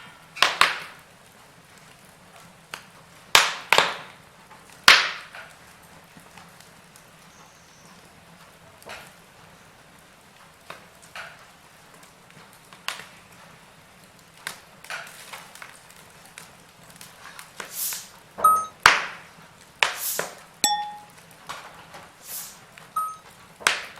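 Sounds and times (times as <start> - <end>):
wood fire crackling and popping: 0.4 - 7.2, 10.4 - 13.1, 13.9 - 20.4
ringing chime tones: 18.4 - 18.7, 20.6 - 21.1, 23.0 - 23.2.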